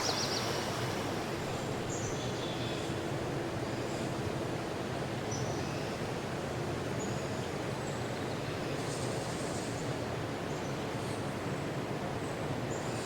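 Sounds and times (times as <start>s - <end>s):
high bird chirps: 0.0s - 0.8s
low rushing noise: 0.0s - 2.0s.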